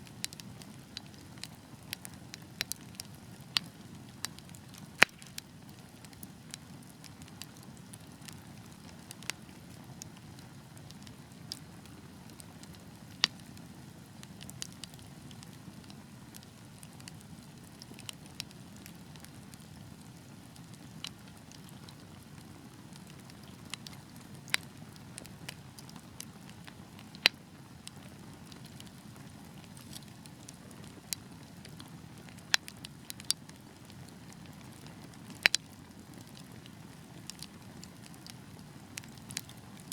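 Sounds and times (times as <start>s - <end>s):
fire popping and crackling: 0.0s - 39.9s
low rumble of flames: 0.0s - 39.9s.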